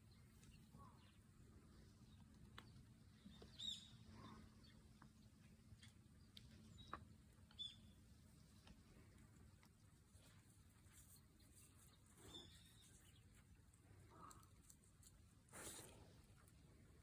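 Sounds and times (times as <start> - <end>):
bird chirping: 2.0 - 4.8, 6.6 - 8.0.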